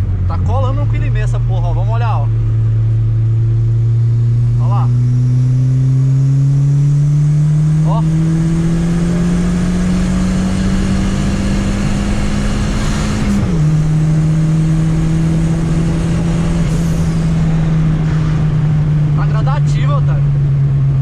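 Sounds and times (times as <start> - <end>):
car engine pulling under load: 4.3 - 21.0.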